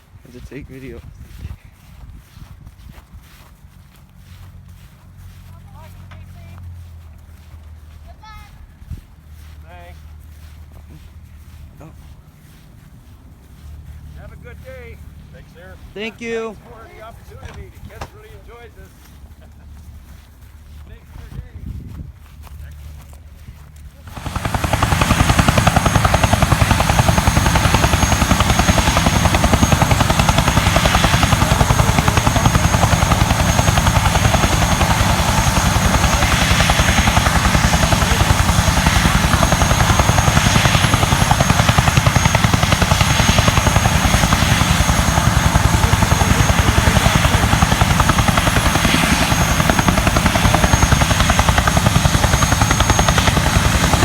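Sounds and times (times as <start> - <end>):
helicopter turbine and rotor chop: 0.0 - 54.0.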